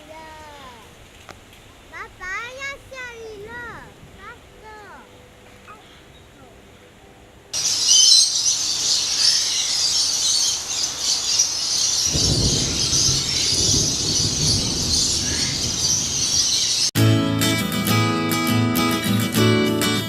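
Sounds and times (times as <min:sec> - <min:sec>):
birds chirping and calling: 0:05.4 - 0:07.0, 0:07.6 - 0:16.9
acoustic guitar music: 0:17.0 - 0:20.0.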